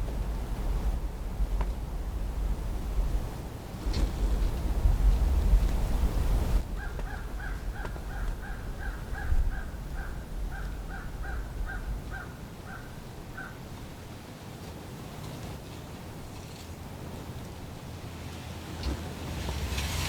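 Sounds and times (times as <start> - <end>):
wind rumble on microphone: 0.0 - 14.2
turkey yelps: 6.8 - 13.6.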